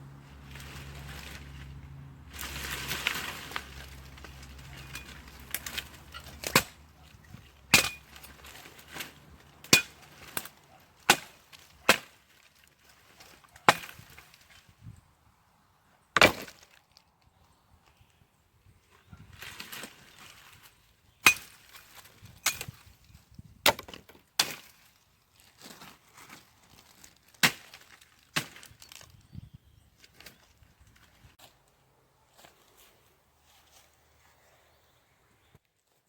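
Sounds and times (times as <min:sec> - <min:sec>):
rustling noise: 0:00.2 - 0:10.5, 0:30.0 - 0:36.0.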